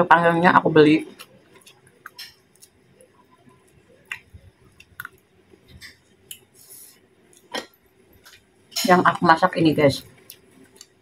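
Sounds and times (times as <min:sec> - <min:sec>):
person chewing food: 0:01.1 - 0:08.6, 0:10.1 - 0:11.0
mouth clicks and smacks: 0:04.0 - 0:05.3.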